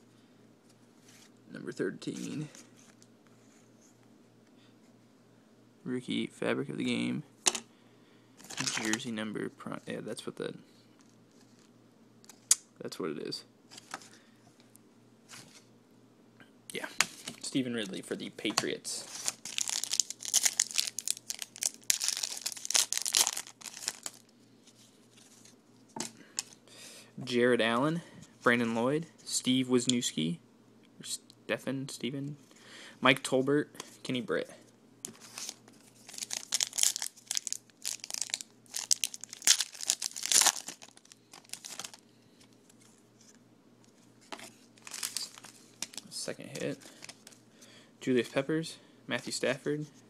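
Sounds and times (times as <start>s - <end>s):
foil wrapper tearing: 19.2s - 24.3s, 35.3s - 42.0s, 44.8s - 46.1s.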